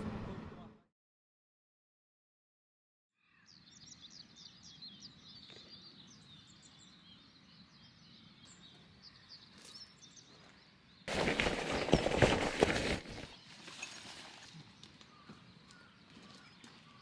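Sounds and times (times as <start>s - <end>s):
small birds chirping: 3.2s - 17.0s.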